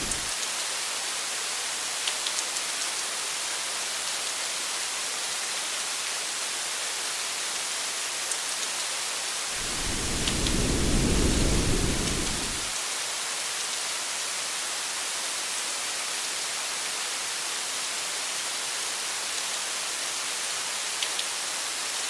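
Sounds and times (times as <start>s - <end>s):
low thunder rumble: 0.0s - 0.3s, 9.6s - 12.7s
steady rain hiss: 0.0s - 0.5s, 9.4s - 13.0s
sharp raindrop ticks: 9.6s - 12.7s.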